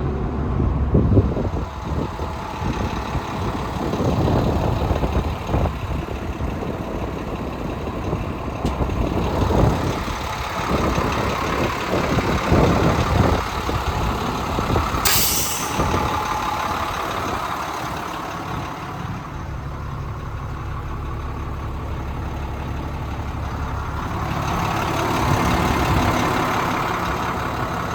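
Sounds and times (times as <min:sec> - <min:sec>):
diesel truck engine idling: 0:00.0 - 0:27.9
air brake hiss: 0:15.0 - 0:16.4.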